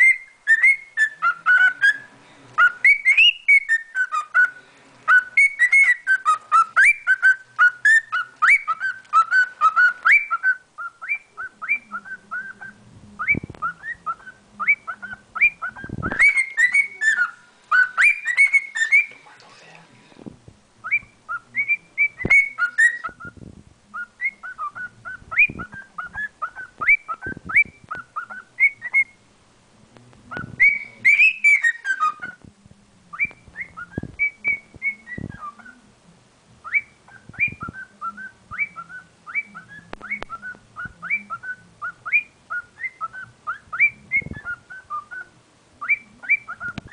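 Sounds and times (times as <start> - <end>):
cockatiel whistling: 0.0 - 19.2, 20.8 - 29.2, 30.3 - 32.4, 33.1 - 35.8, 36.6 - 46.9.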